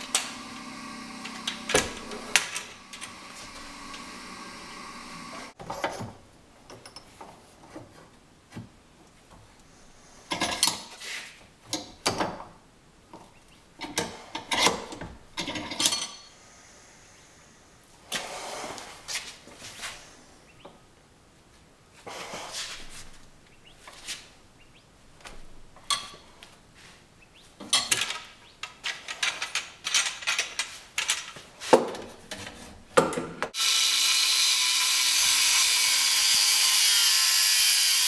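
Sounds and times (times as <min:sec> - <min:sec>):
metal tools clanking and scraping: 0:00.0 - 0:04.0
power tool humming: 0:00.0 - 0:05.6, 0:33.5 - 0:38.0.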